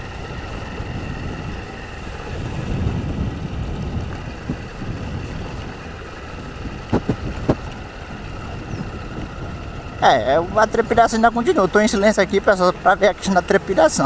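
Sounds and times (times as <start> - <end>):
wind on microphone: 0.0 - 11.1
motorcycle engine running: 0.0 - 14.0.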